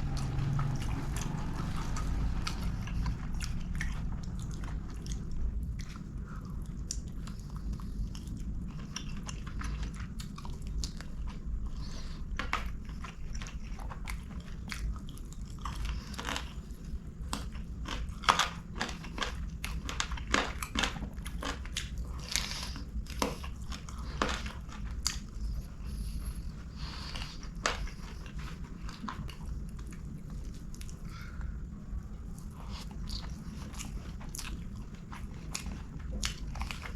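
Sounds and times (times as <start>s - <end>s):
chewing and biting: 0.0s - 36.9s
low steady hum: 0.0s - 36.9s.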